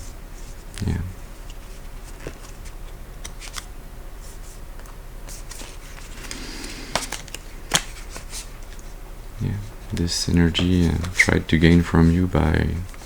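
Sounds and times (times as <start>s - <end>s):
cards clicking softly: 4.8s - 8.8s, 9.9s - 12.2s
cards swishing: 5.3s - 8.9s, 9.6s - 13.0s
card snapping: 6.2s - 8.3s.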